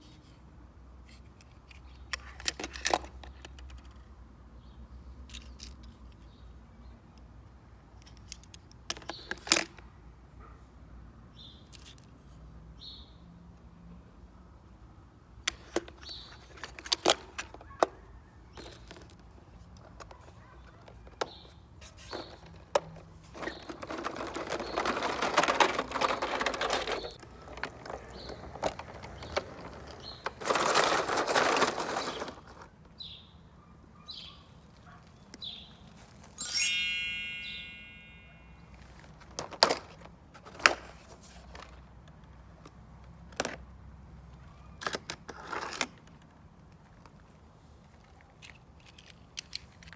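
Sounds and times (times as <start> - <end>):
toy vehicle rolling rattle: 21.9 - 32.7, 48.0 - 49.9.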